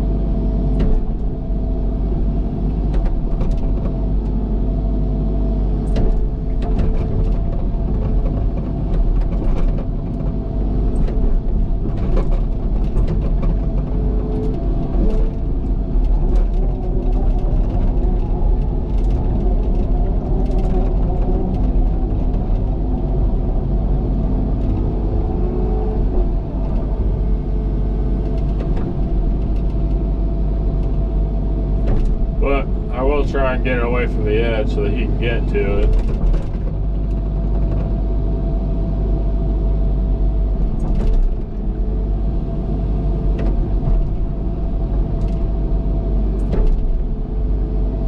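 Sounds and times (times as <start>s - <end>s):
excavator diesel engine running: 0.0s - 48.0s
steady whine: 32.2s - 35.9s.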